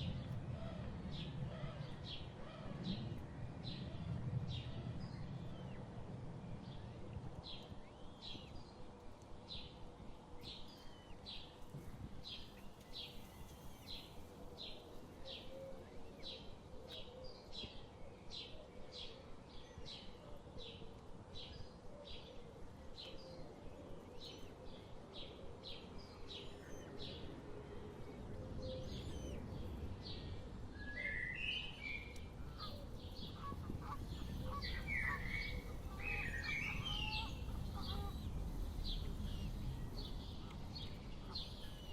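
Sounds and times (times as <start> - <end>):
lower louder chirping calls: 31.6 - 41.9
small bird chirping: 31.6 - 41.9
low rumble: 32.0 - 41.9.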